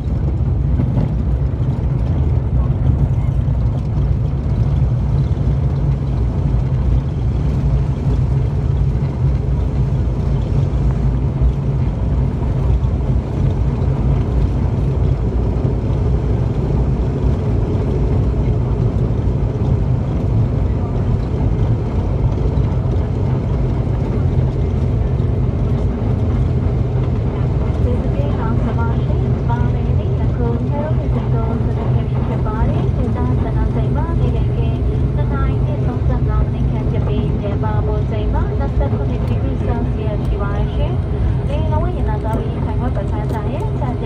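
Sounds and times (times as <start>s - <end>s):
turboprop engines droning: 0.0s - 44.0s.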